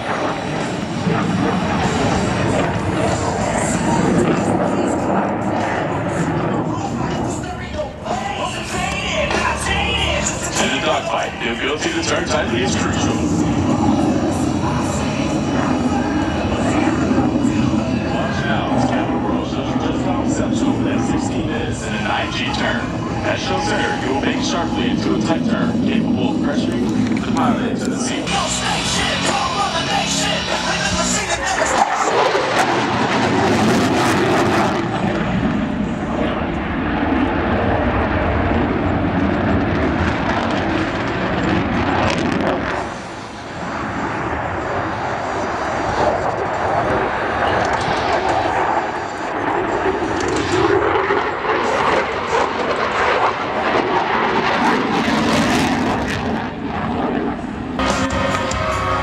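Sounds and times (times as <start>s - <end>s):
jet engine roaring: 0.0s - 59.0s
guitar music: 57.8s - 59.0s.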